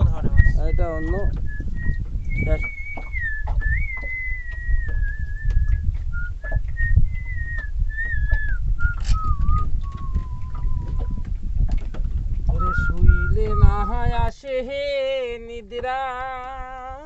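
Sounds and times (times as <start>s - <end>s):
low rumble: 0.0s - 14.3s
man whistling a slow melody: 0.2s - 11.2s, 12.5s - 14.1s
scattered knocks: 0.8s - 13.7s.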